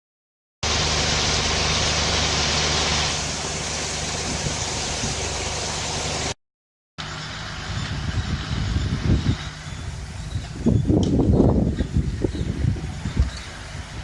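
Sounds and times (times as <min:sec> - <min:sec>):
heavy machinery diesel engine: 0:00.6 - 0:06.4, 0:07.0 - 0:14.0
loud hiss: 0:00.6 - 0:06.4.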